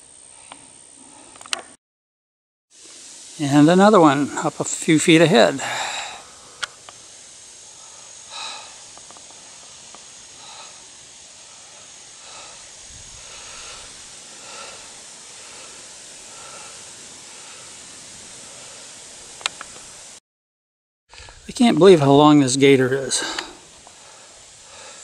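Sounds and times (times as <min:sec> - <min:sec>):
steady hiss: 0:00.0 - 0:01.8, 0:02.7 - 0:20.2, 0:21.1 - 0:25.0
thin high steady tone: 0:02.8 - 0:20.2.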